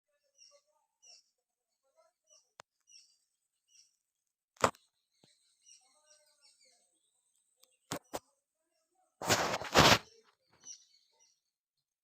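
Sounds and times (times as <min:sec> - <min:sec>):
faint bird chirps: 0:00.1 - 0:11.9.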